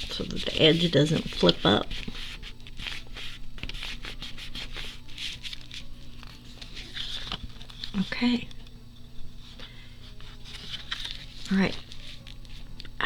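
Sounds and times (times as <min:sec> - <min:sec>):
paper being rubbed by hand: 0:00.0 - 0:08.2.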